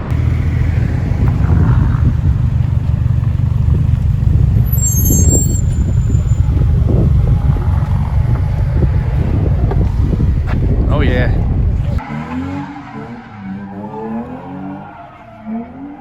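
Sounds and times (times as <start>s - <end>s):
car driving rumble: 0.0s - 12.0s.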